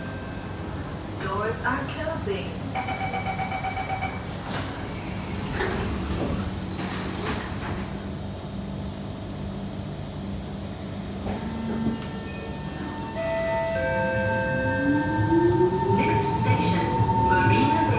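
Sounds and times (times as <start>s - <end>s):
train hum: 0.0s - 17.9s
sliding train doors closing: 3.2s - 8.3s, 10.6s - 14.4s.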